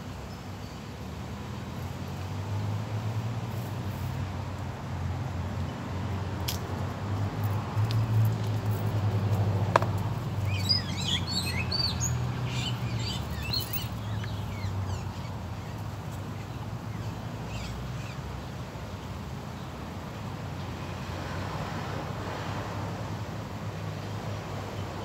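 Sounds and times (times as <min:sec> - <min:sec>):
bird chirping: 0:10.4 - 0:15.8.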